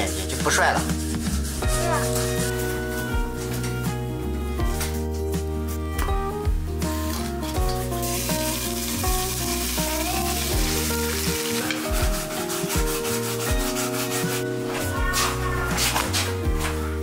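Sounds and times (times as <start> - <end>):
wooden spatula scraping: 0.0 - 3.8, 6.9 - 16.9
background music: 0.0 - 17.0
batter sizzling in hot oil: 7.0 - 14.0.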